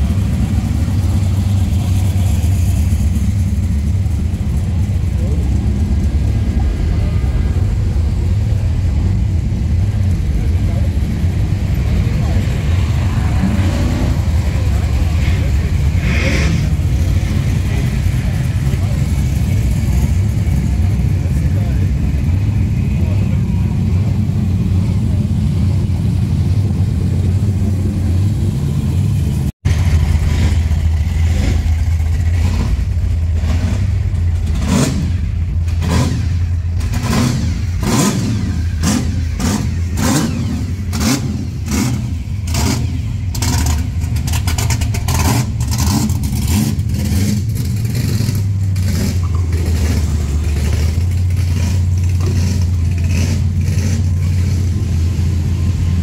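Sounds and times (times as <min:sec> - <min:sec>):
deep car engine rumble: 0:00.0 - 0:56.0
rev blips and exhaust cracks: 0:00.0 - 0:56.0.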